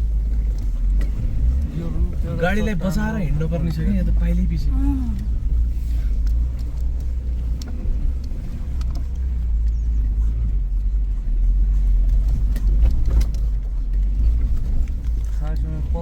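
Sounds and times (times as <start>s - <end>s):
body and suspension rattling: 0.0s - 16.0s
engine and tyres rumbling: 0.0s - 16.0s.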